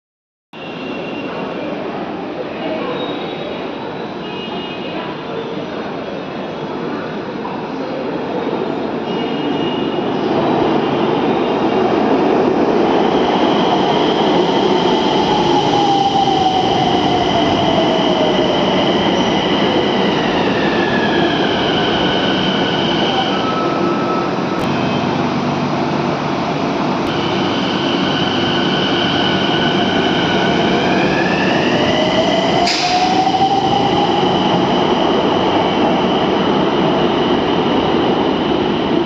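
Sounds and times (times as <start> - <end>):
metro train rumbling: 0.6 - 39.0
train whining tones: 13.5 - 36.1.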